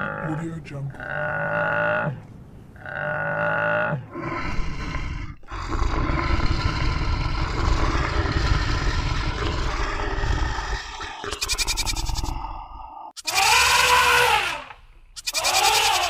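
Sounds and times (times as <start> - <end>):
animal roar with deep rumble: 0.0 - 14.8
bleating call: 13.2 - 16.0.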